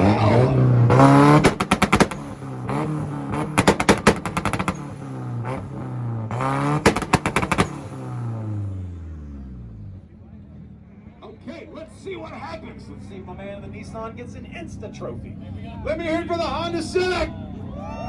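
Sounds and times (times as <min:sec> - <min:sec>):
exhaust pops and bangs: 0:00.0 - 0:08.6
pickup engine revving: 0:00.0 - 0:10.2.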